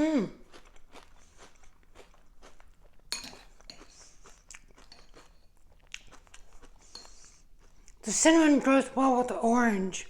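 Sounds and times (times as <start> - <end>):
person chewing crunchy cereal: 0.2 - 8.1.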